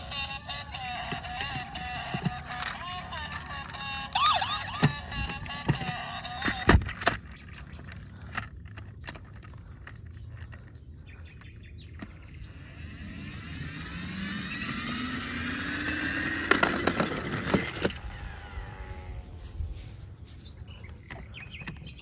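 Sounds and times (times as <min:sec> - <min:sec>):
motor speeding up: 0:00.0 - 0:08.1, 0:11.9 - 0:19.9.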